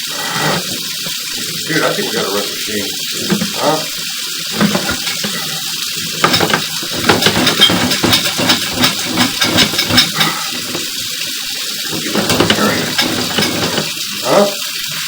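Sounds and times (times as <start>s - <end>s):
running water hissing: 0.0s - 15.0s
knocks and rattles: 3.1s - 11.2s, 11.9s - 14.0s.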